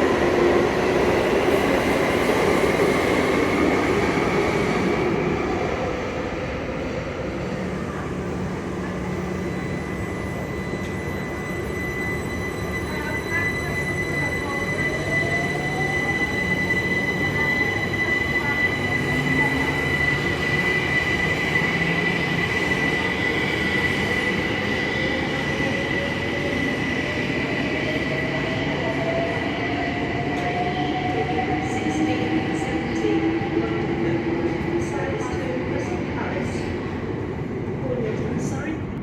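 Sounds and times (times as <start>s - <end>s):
high-pitched train squeal: 9.2s - 36.7s.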